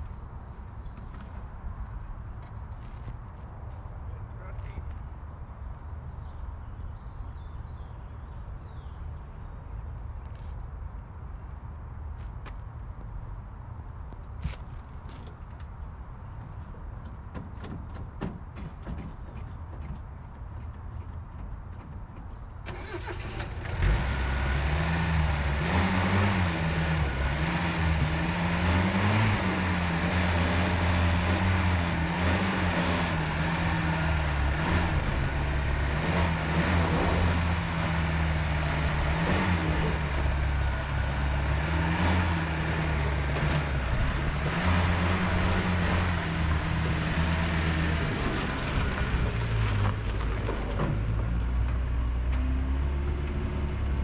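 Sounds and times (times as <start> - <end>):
pickup truck engine running: 22.7 - 52.1.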